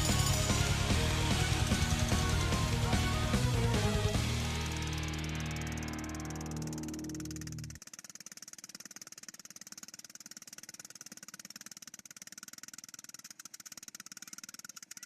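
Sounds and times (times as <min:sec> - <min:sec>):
music: 0:00.0 - 0:07.7
jackhammer running: 0:00.0 - 0:15.0.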